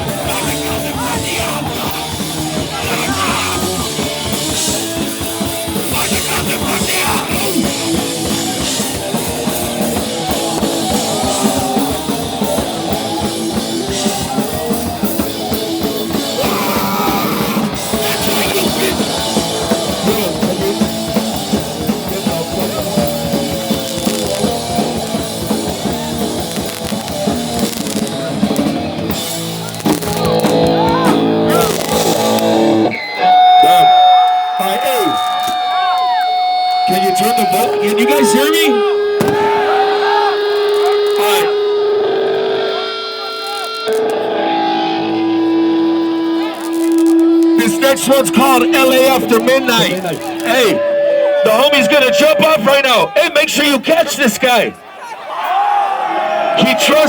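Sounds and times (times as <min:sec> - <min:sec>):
punk band playing live: 0:00.0 - 0:54.6, 0:56.2 - 0:57.0.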